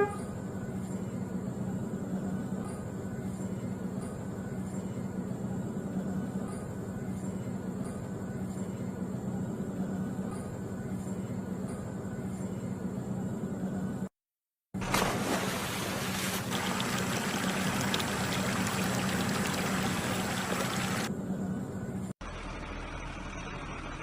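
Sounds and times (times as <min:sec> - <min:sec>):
vehicle engine drone: 0:14.8 - 0:24.0.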